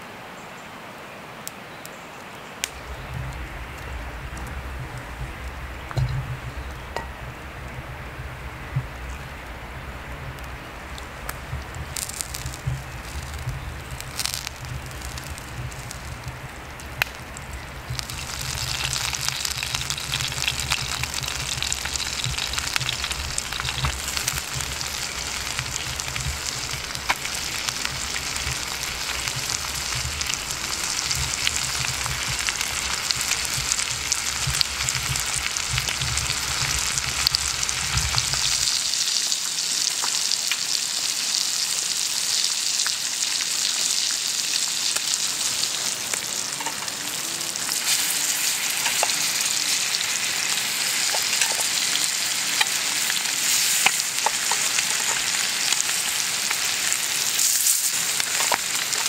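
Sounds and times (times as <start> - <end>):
food sizzling with crackles: 1.4 - 59.0
low rumble: 2.7 - 38.7.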